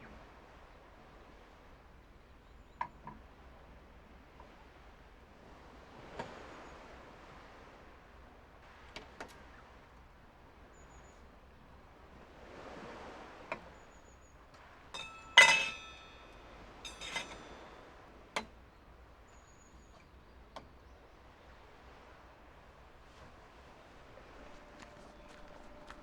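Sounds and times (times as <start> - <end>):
ringing clink: 15.0 - 18.0.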